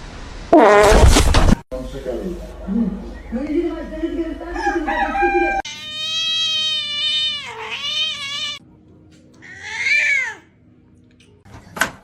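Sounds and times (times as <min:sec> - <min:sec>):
cat meowing: 0:05.6 - 0:08.6.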